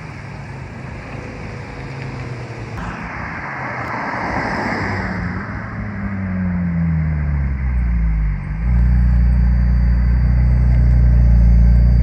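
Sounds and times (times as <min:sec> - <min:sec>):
rushing noise: 0:00.0 - 0:05.5
car engines running: 0:00.0 - 0:12.0.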